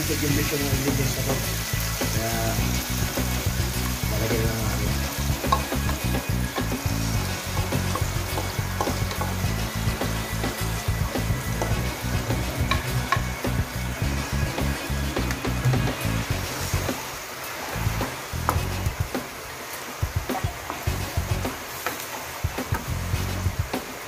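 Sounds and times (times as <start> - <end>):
fish sizzling in a wok: 0.0 - 24.0
sauce pouring: 0.4 - 23.4
wooden spatula stirring: 3.8 - 13.4.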